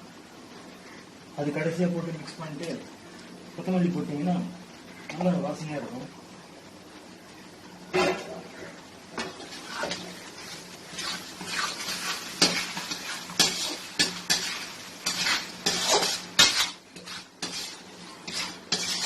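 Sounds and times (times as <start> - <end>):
spoon scraping a metal pan: 10.9 - 19.0.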